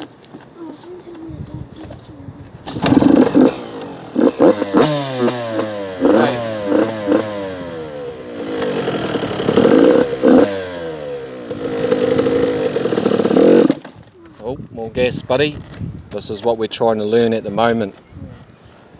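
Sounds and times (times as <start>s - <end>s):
dirt bike engine revving: 2.6s - 14.0s.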